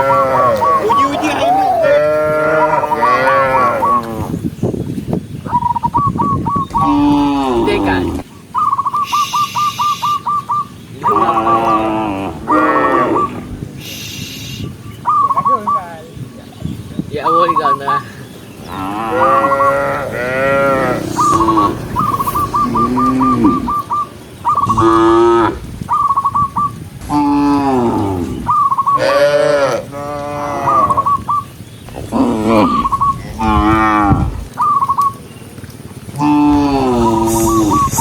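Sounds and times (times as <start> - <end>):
cattle mooing: 0.0 - 4.3, 11.1 - 13.6, 18.6 - 24.0, 24.6 - 25.7, 27.0 - 31.1, 32.0 - 34.5, 36.2 - 38.0
short high trilling sounds: 19.4 - 25.4, 37.0 - 38.0.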